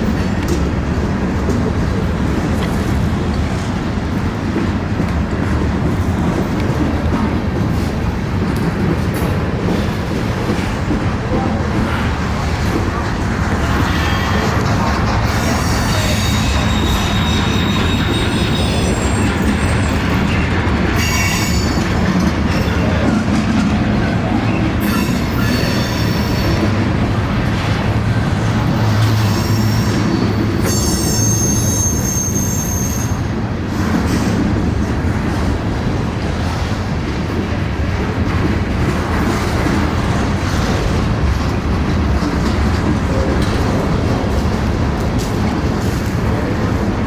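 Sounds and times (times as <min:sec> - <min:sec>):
train wheels rumbling on rails: 0:00.0 - 0:47.0
high-pitched wheel squeal: 0:15.3 - 0:20.1, 0:29.1 - 0:33.3.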